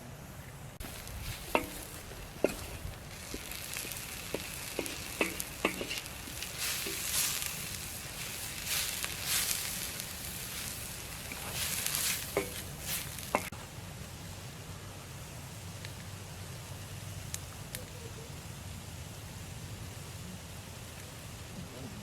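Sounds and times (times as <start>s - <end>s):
food sizzling in hot oil: 0.8s - 13.6s.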